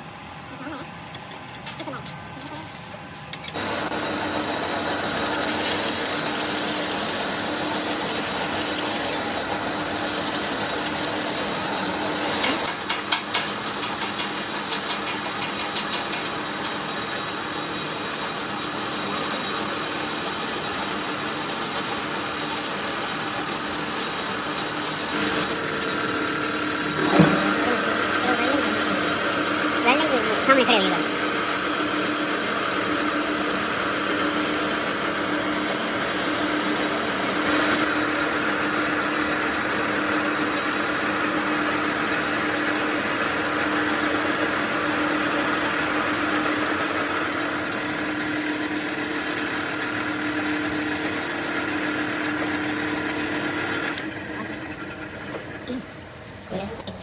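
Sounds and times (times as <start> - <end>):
power tool running: 2.0 - 56.5.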